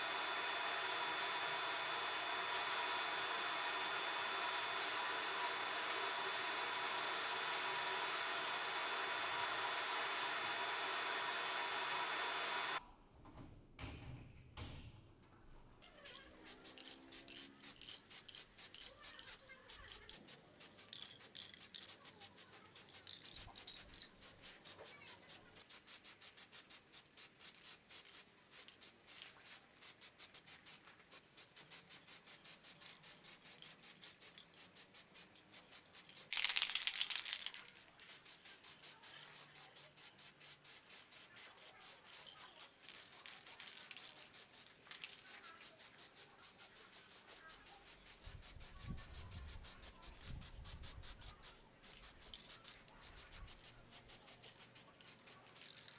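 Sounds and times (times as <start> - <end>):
rapid rubbing strokes: 38.1 - 55.5.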